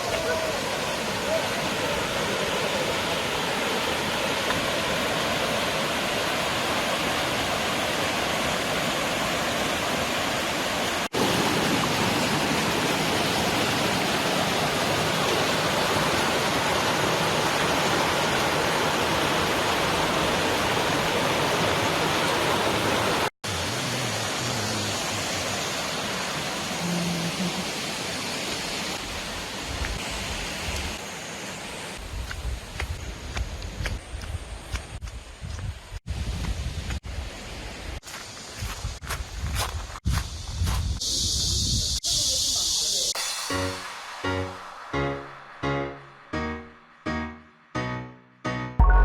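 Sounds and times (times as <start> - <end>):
water rushing over rocks: 0.0 - 32.0.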